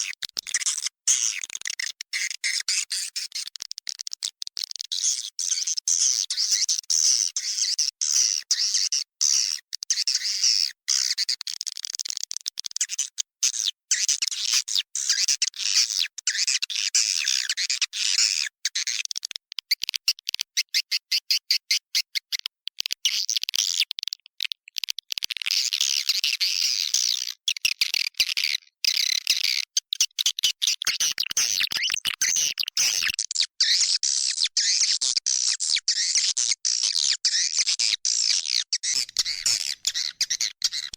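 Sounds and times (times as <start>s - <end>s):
swiftlets twittering and chirping: 28.9s - 40.9s.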